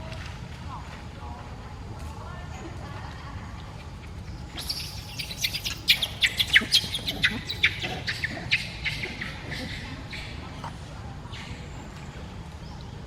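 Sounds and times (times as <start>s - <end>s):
high falling chirping calls: 4.2s - 10.5s.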